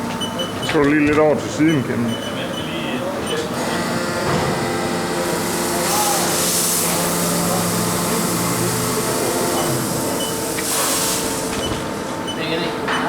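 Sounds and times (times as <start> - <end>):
milling machine hum: 3.0 - 12.8.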